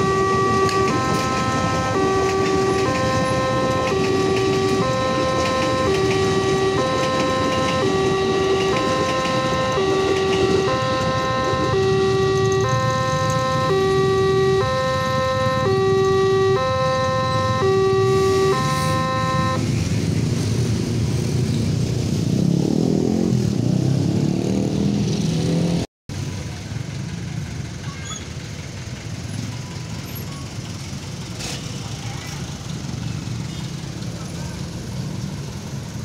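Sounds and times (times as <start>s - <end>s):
level crossing warning alarm: 0.0s - 19.9s
traffic rumble: 0.0s - 36.0s
vehicle engines rising in pitch: 0.0s - 36.0s.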